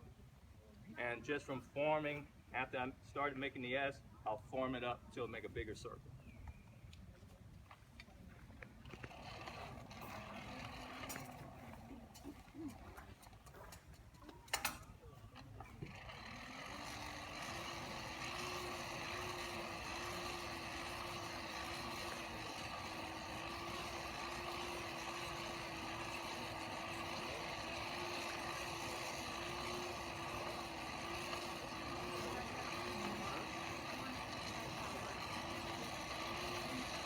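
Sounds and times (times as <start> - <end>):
motor humming and rushing: 8.8 - 37.0.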